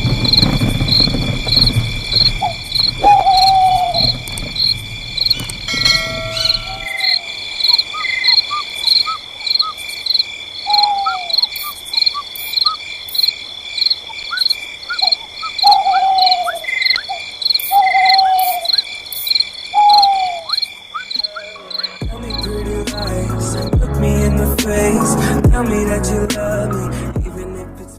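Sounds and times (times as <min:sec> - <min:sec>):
insects trilling: 0:00.0 - 0:26.2
crickets chirping: 0:00.0 - 0:27.3
falling animal calls: 0:00.4 - 0:09.8, 0:10.6 - 0:12.8, 0:14.2 - 0:18.9, 0:19.7 - 0:22.4
small rising chirps: 0:02.4 - 0:07.4
music: 0:21.4 - 0:27.9.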